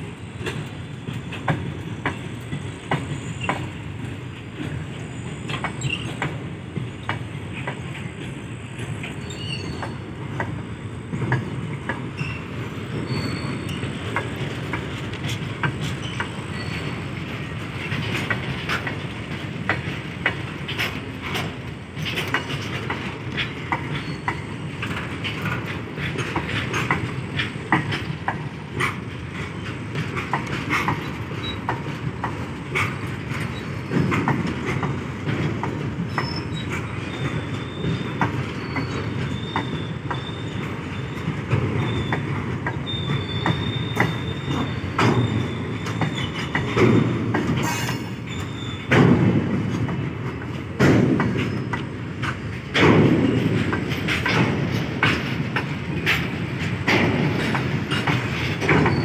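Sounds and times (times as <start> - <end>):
train wheels rumbling on rails: 0.0 - 59.0
wheels clicking over rail joints: 0.0 - 59.0
wheel squeals: 5.1 - 6.4, 9.0 - 10.1, 11.9 - 14.4, 15.2 - 18.2, 22.3 - 25.0, 29.3 - 31.7, 36.0 - 49.2, 51.3 - 52.6, 56.9 - 59.0.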